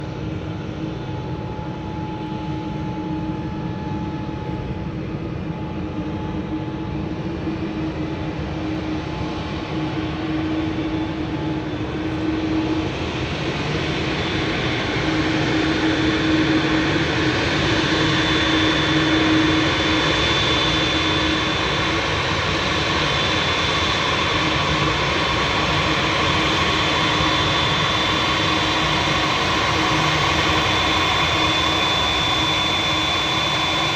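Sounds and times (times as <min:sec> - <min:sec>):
high-pitched whine: 0:00.3 - 0:33.9
jet engines roaring: 0:07.0 - 0:33.9.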